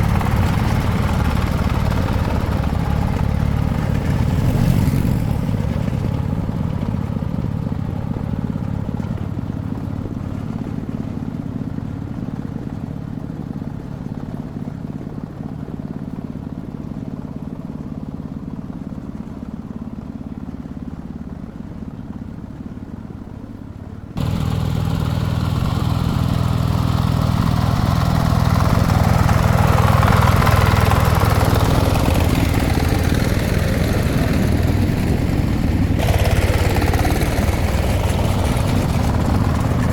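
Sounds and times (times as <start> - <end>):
small diesel engine running: 0.0 - 39.9.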